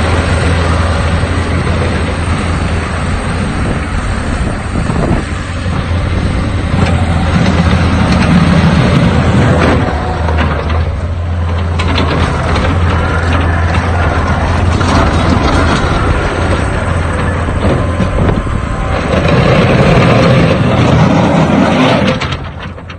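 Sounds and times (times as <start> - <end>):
diesel engine running: 0.0 - 22.9
sharp clicks and knocks: 9.5 - 13.9, 22.0 - 22.9.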